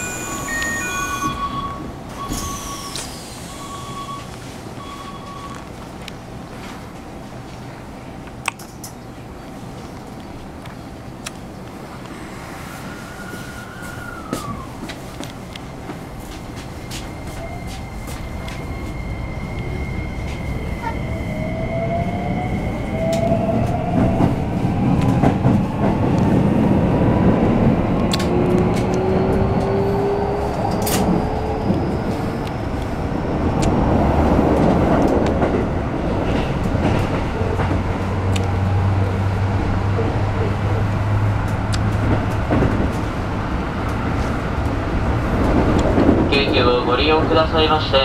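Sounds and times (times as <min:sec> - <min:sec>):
rail joint clicks: 0:00.0 - 0:03.5, 0:08.2 - 0:09.1, 0:13.7 - 0:21.1, 0:23.0 - 0:26.4, 0:27.8 - 0:38.8, 0:41.4 - 0:47.7
wheel and rail rumble: 0:00.0 - 0:48.0.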